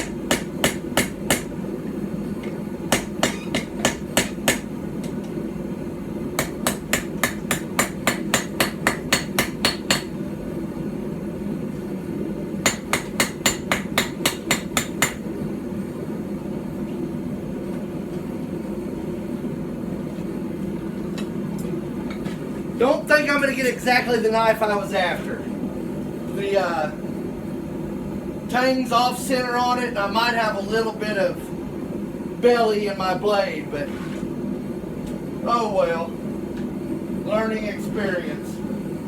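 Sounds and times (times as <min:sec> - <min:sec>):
hammer striking on anvil: 0:00.0 - 0:01.6, 0:02.9 - 0:04.7, 0:06.4 - 0:10.2, 0:12.6 - 0:15.3.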